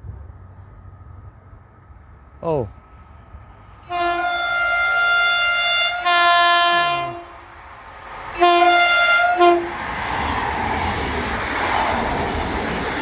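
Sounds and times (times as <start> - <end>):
train running past: 0.0 - 13.0
train horn blasts: 3.8 - 7.5, 8.3 - 9.9.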